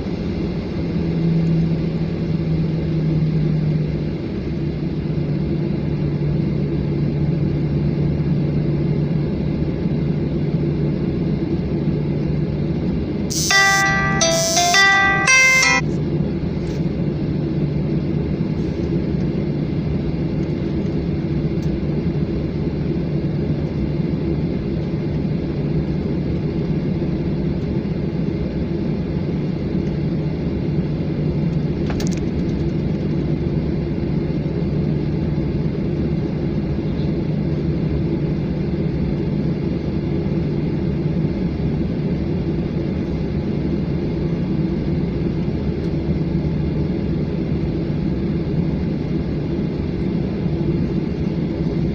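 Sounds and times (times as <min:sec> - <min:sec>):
jet cabin engine rumble: 0:17.9 - 0:51.9.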